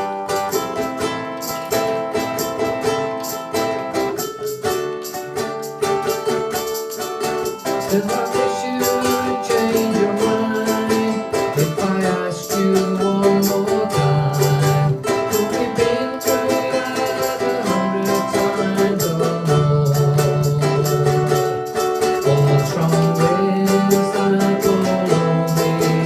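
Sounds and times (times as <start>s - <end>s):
ukuleles strumming chords: 0.0s - 26.0s
voices singing slow melody: 7.8s - 21.5s, 22.2s - 26.0s.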